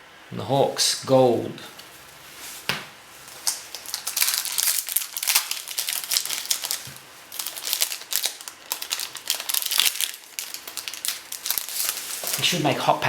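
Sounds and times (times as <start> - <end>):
card pack wrapper crinkling and tearing: 3.3 - 12.8.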